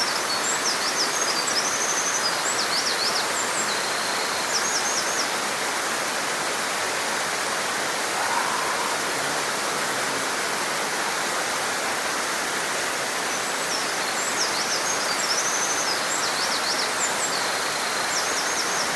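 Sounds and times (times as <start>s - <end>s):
stream rushing: 0.2s - 18.9s.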